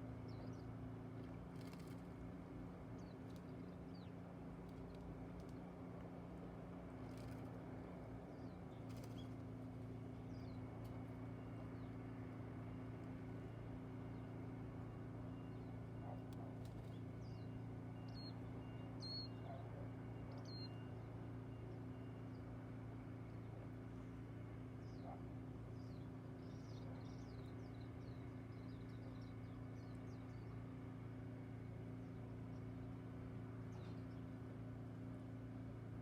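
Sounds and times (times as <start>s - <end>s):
faint high bird calls: 15.3s - 22.3s.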